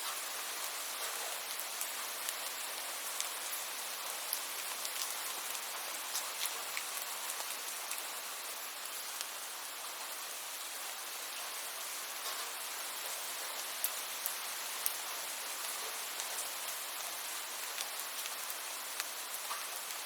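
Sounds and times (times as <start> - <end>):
rain falling in a hiss: 0.0 - 20.0
raindrop ticks: 19.0 - 20.0.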